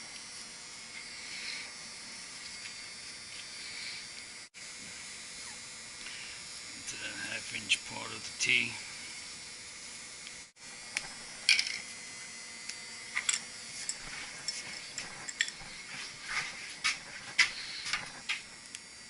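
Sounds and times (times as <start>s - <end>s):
steady hiss: 5.8s - 10.0s.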